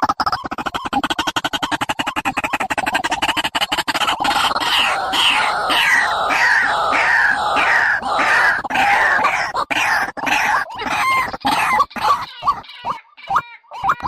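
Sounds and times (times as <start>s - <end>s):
bird calling harshly: 0.5s - 14.0s.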